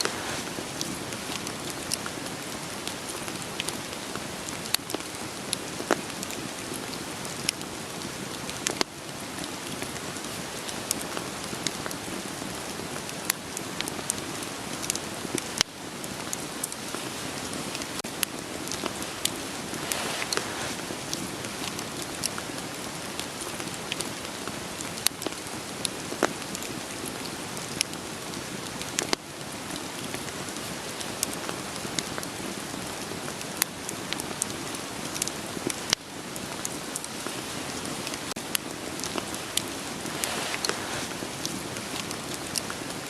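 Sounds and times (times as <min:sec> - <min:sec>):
firewood crackling and popping: 0:00.0 - 0:43.0
steady rain falling: 0:00.0 - 0:43.0.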